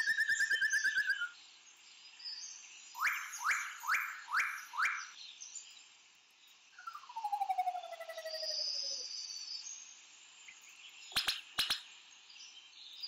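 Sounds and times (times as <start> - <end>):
bird trill: 0.0 - 1.4, 3.0 - 5.2, 6.8 - 9.1
faint high bird calls: 0.0 - 1.4, 3.0 - 5.2, 6.8 - 9.3
upward-sweeping bird calls: 0.0 - 1.4, 3.0 - 5.2, 6.8 - 9.1, 11.2 - 11.9.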